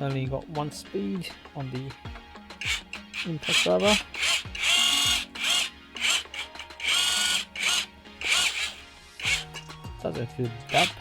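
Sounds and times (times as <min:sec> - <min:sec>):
impact driver motor whine: 0:02.6 - 0:09.7, 0:10.7 - 0:11.0.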